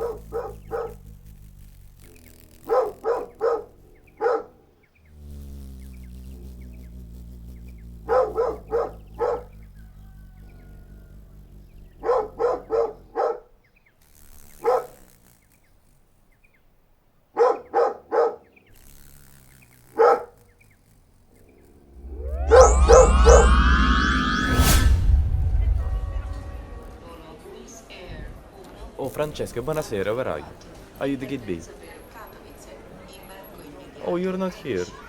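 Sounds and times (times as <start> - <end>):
dog barking: 0.0 - 1.0, 2.6 - 4.6, 8.0 - 9.5, 12.0 - 13.5, 14.6 - 15.0, 17.4 - 18.5, 19.9 - 20.4
low steady hum: 21.8 - 27.4.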